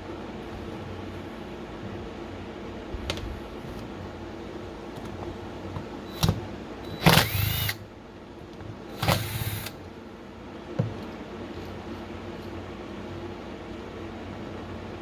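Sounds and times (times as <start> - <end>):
impact driver bursts: 6.1 - 7.8, 8.9 - 9.8.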